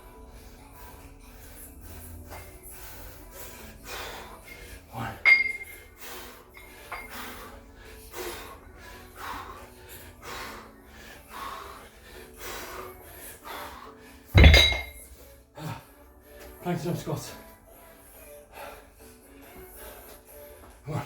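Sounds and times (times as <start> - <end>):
heavy rhythmic breathing: 0.0 - 21.0
metallic clink: 5.2 - 5.8, 14.4 - 15.1
dumbbells thudding on floor: 5.3 - 5.8, 14.4 - 15.0.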